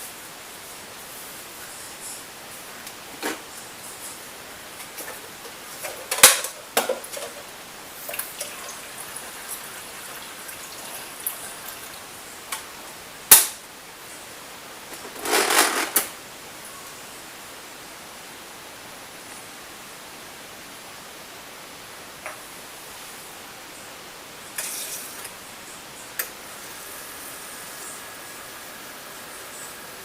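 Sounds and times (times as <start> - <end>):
steady hiss: 0.0 - 30.0
clattering rustle: 14.9 - 16.1.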